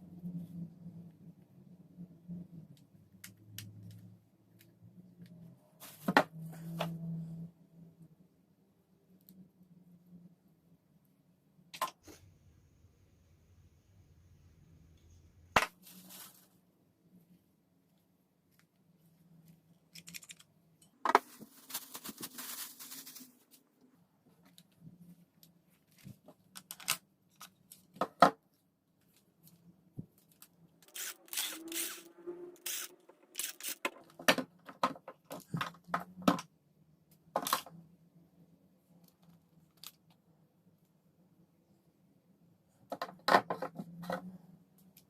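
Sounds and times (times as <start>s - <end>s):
scraping and rustling: 15.8s - 16.6s, 20.0s - 23.7s.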